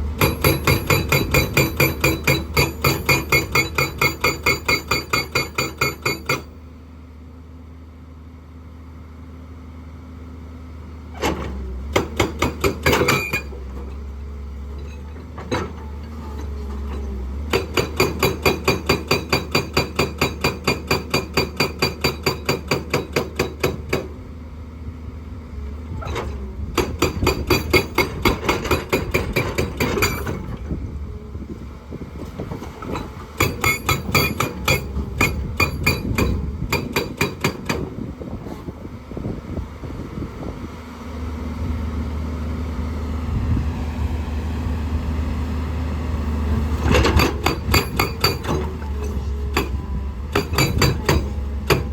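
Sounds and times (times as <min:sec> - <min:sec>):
excavator diesel engine running: 0:00.0 - 0:51.9
hydraulic breaker hammering rock: 0:00.2 - 0:06.6, 0:11.2 - 0:13.6, 0:16.9 - 0:24.2, 0:26.0 - 0:30.6, 0:32.5 - 0:38.6, 0:46.8 - 0:51.9.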